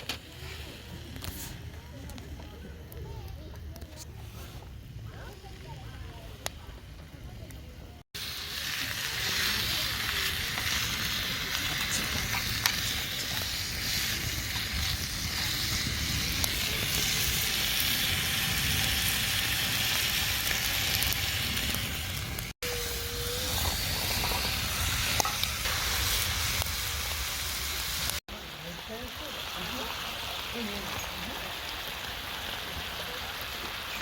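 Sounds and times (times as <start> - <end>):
food sizzling in a pan: 8.1 - 34.0.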